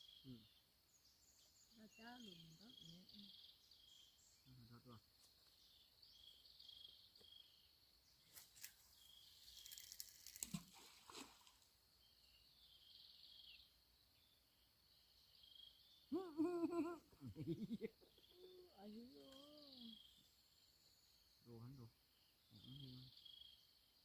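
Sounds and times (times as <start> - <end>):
insects chirping in pulses: 0.0 - 24.0
crackles and rustles: 8.2 - 11.7.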